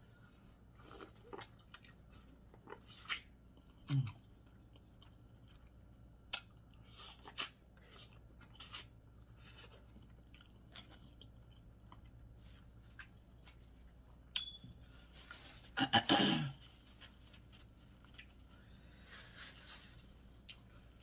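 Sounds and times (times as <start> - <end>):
person chewing: 0.7 - 15.4.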